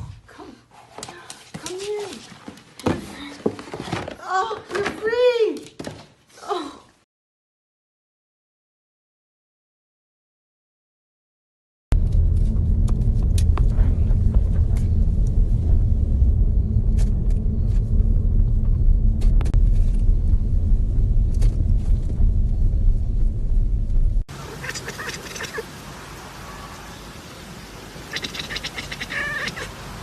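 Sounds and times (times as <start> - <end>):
steady low rumble: 11.9 - 25.7.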